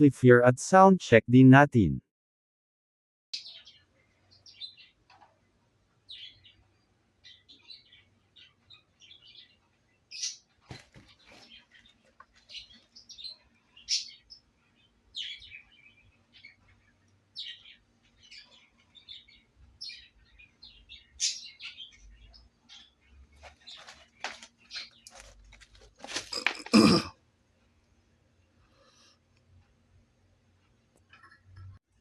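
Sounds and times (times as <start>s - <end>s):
small birds chirping: 3.4s - 27.0s.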